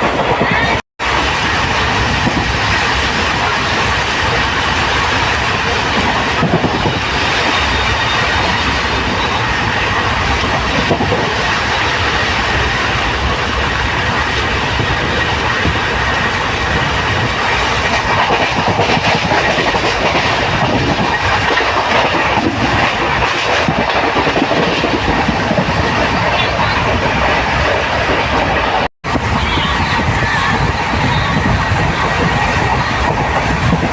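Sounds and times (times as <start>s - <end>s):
train rumbling along track: 0.0s - 33.9s
wheels clacking over rail joints: 0.0s - 33.9s.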